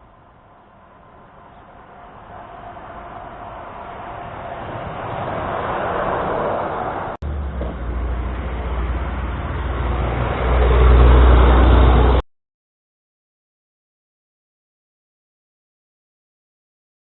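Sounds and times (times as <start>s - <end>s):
highway traffic passing: 0.0s - 12.2s.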